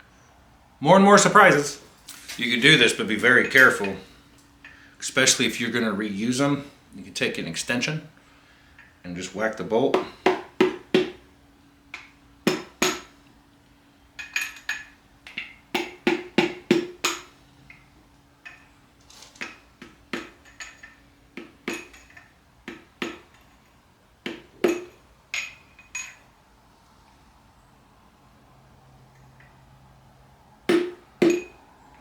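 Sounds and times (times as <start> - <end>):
metal-on-metal taps with ringing: 14.2 - 17.8, 19.4 - 23.7, 24.3 - 26.2, 30.7 - 31.6.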